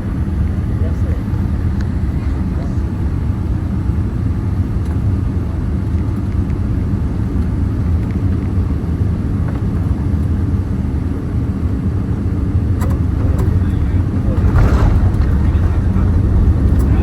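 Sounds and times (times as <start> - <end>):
airplane cabin low rumble: 0.0 - 17.0.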